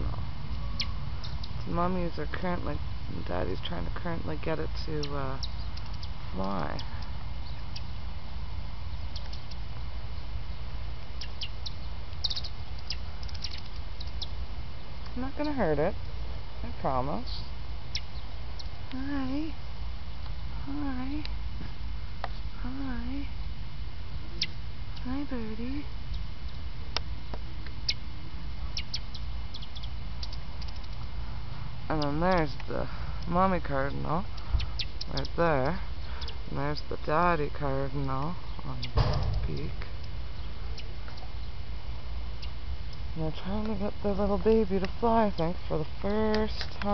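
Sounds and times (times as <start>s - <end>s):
steady low rumble: 0.0s - 46.9s
cardinal chip calls: 11.2s - 14.4s, 27.8s - 31.0s, 33.8s - 36.9s.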